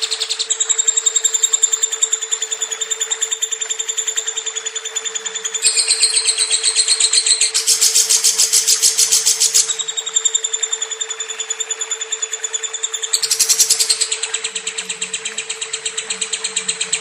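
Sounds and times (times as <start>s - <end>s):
lovebird trilling: 4.8s - 17.0s.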